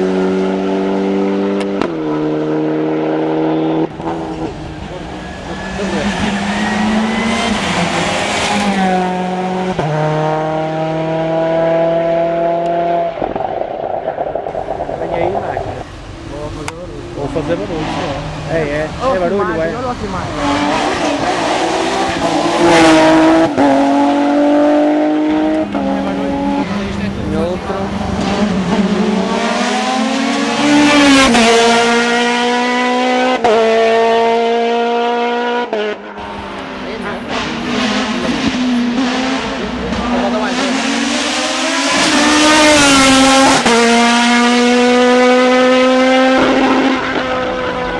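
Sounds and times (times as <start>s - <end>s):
race car engine revving: 0.0s - 47.9s.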